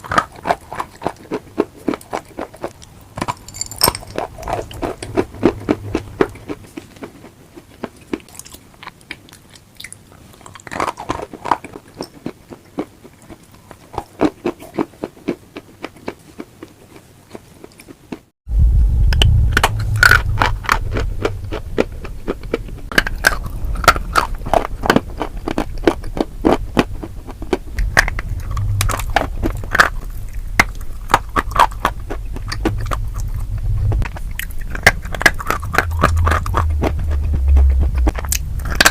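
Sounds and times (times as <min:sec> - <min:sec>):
crunchy food chewing: 0:00.0 - 0:03.5, 0:04.1 - 0:18.3, 0:19.7 - 0:38.9
low hum: 0:03.4 - 0:06.7, 0:18.5 - 0:25.8, 0:26.6 - 0:38.9.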